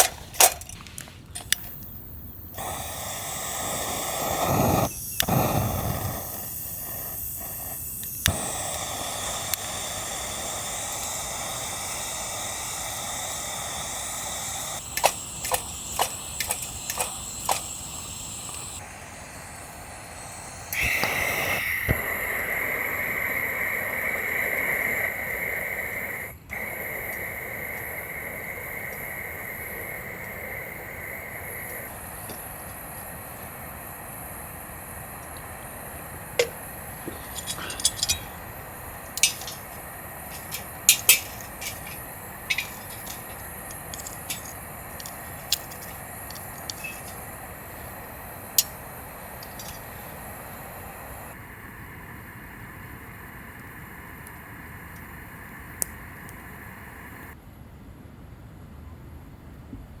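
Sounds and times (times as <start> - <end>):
steady background hiss: 0.0 - 59.6
cookware clinking: 36.4 - 38.5, 39.1 - 47.4, 49.4 - 49.9.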